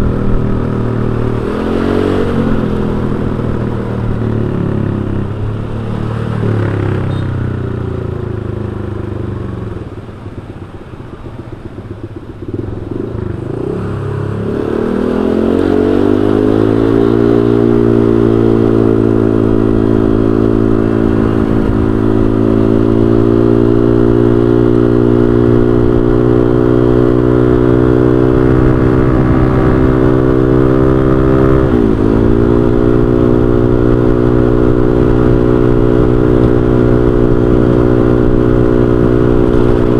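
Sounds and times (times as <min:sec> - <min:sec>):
scooter engine droning: 0:00.0 - 0:39.9.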